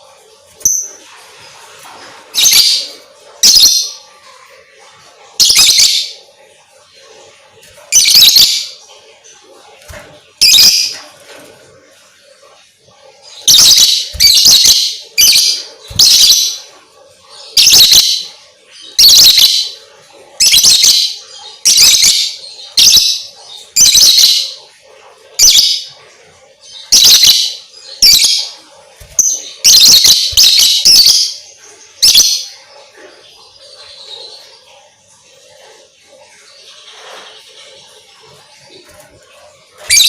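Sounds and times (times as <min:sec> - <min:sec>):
lovebird shrill chirping: 0:07.9 - 0:08.8, 0:10.4 - 0:10.9, 0:13.4 - 0:16.6, 0:17.6 - 0:18.2, 0:19.0 - 0:19.7, 0:20.4 - 0:23.2, 0:26.9 - 0:28.4, 0:29.0 - 0:31.4, 0:32.0 - 0:32.4.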